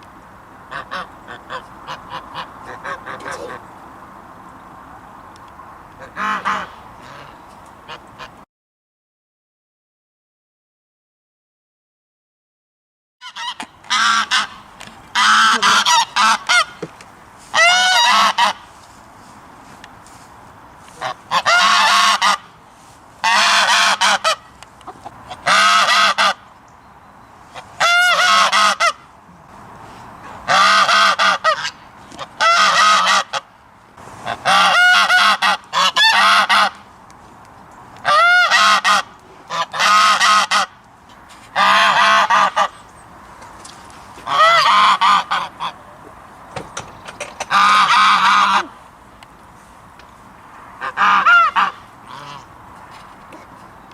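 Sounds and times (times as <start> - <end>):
geese honking: 0.7 - 3.6, 6.0 - 8.4, 13.2 - 18.9, 20.8 - 22.6, 23.2 - 26.5, 27.5 - 29.1, 30.2 - 33.5, 34.2 - 36.9, 38.0 - 40.8, 41.5 - 42.8, 44.2 - 46.0, 47.3 - 48.8, 50.8 - 52.6.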